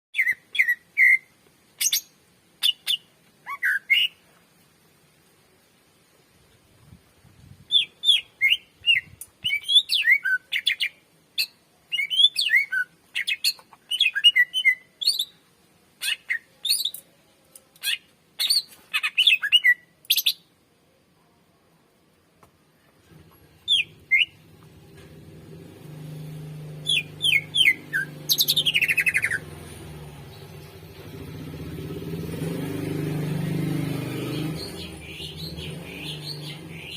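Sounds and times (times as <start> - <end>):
bird singing chirps and whistles: 0.2 - 4.2, 7.7 - 15.4, 16.0 - 17.0, 17.8 - 20.4, 23.7 - 24.4, 26.8 - 29.5, 34.2 - 36.9.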